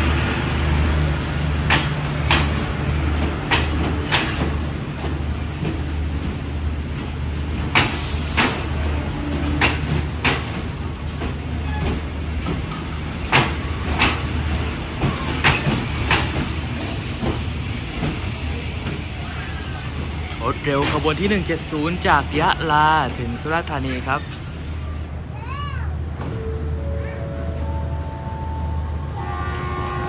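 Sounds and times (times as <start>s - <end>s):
diesel locomotive engine hum: 0.0s - 30.0s
train wheels clicking over rail joints: 1.5s - 19.1s.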